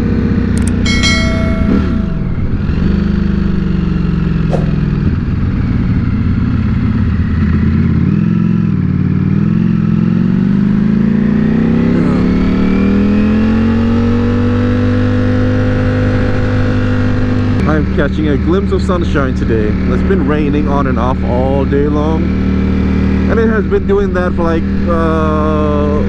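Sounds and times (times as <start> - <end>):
motorcycle engine accelerating: 4.5 - 18.6.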